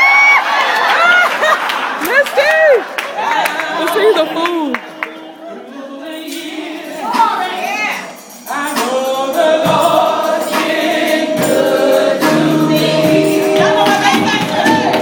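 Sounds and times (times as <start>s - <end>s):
gospel choir singing: 3.0s - 15.0s
steady percussive beat: 6.1s - 15.0s.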